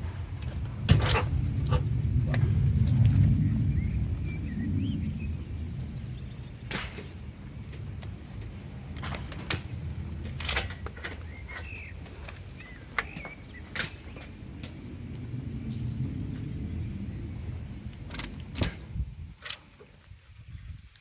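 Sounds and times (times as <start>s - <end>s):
steady low rumble: 0.0s - 19.4s
small birds chirping: 3.3s - 7.5s, 10.6s - 14.5s, 15.6s - 17.3s.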